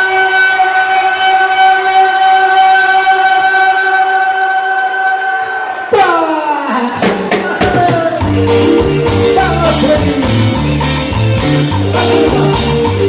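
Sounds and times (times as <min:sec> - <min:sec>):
drums and bass beat: 0:07.0 - 0:13.0.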